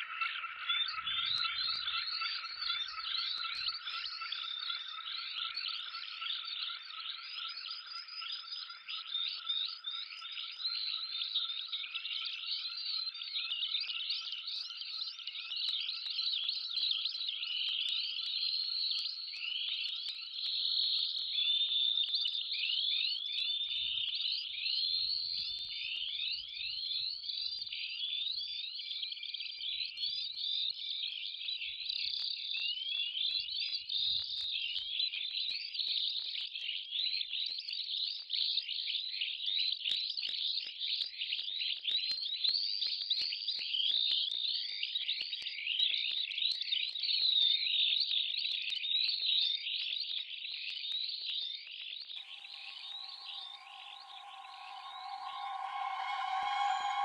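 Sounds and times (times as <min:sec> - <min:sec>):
faint steady tone: 0:52.2 - 0:57.0
many small birds chirping: 0:52.2 - 0:57.0.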